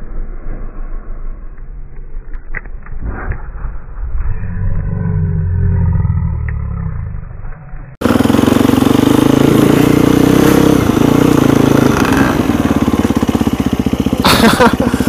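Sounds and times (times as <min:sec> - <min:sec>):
muffled low rumble: 0:00.0 - 0:08.0
dirt bike engine: 0:02.6 - 0:15.0.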